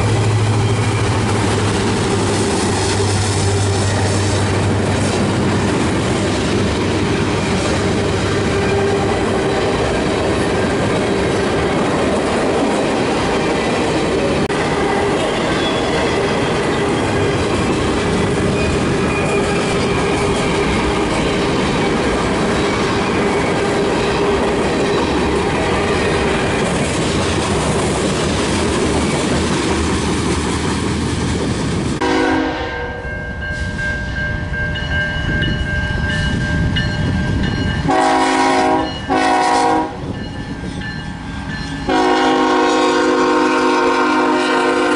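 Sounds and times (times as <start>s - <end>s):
train wheels clattering: 0.0s - 32.0s
train horn: 14.5s - 16.6s, 32.0s - 33.2s, 37.9s - 40.1s, 41.9s - 44.9s.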